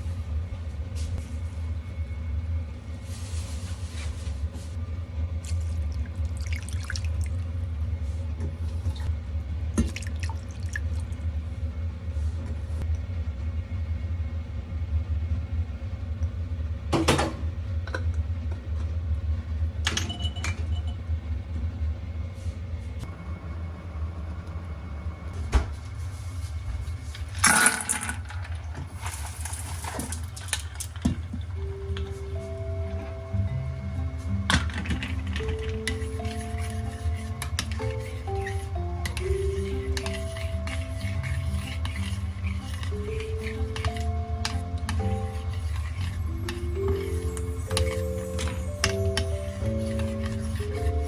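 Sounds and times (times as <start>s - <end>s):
steady low hum: 0.0s - 19.9s, 20.9s - 51.0s
water and liquid noises: 5.5s - 7.6s, 9.8s - 11.4s
kitchen knocks and clatters: 17.0s - 17.4s.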